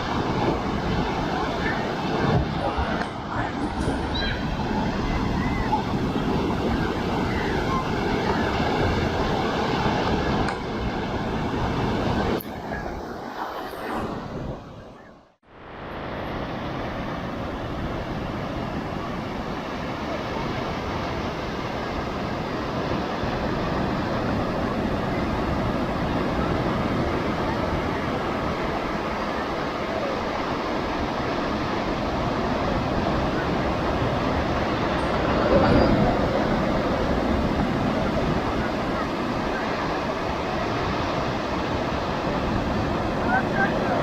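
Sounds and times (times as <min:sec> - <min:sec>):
waves breaking on rocks: 0:00.0 - 0:14.6.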